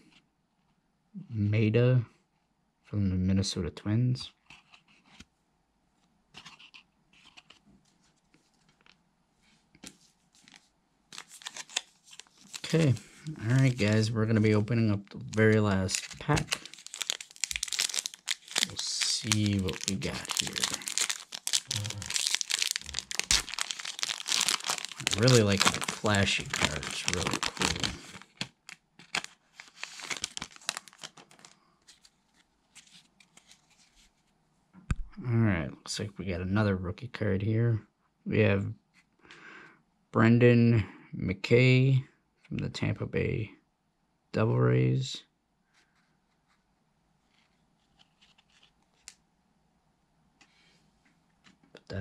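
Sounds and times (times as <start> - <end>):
cards rustling and clicking: 6.3 - 9.0, 9.8 - 34.2, 47.3 - 49.2
foil wrapper crinkling: 10.4 - 33.7.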